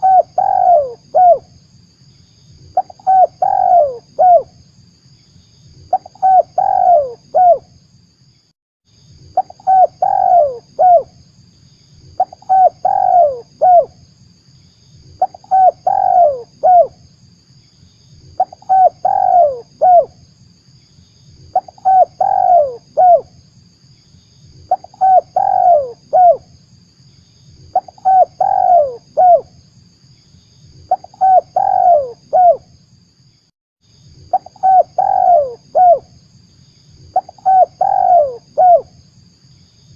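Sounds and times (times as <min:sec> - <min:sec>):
dove cooing: 0:00.0 - 0:01.4, 0:02.8 - 0:04.5, 0:05.9 - 0:07.6, 0:09.4 - 0:11.1, 0:12.2 - 0:13.9, 0:15.2 - 0:17.0, 0:18.4 - 0:20.1, 0:21.5 - 0:23.3, 0:24.7 - 0:26.4, 0:27.7 - 0:29.5, 0:30.9 - 0:32.6, 0:34.3 - 0:36.1, 0:37.1 - 0:38.9
faint steady hiss: 0:00.0 - 0:39.9.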